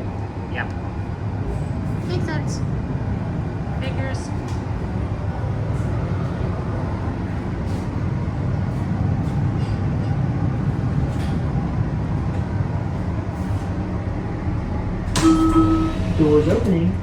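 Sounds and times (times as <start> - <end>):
train car rumbling on track: 0.0 - 17.0.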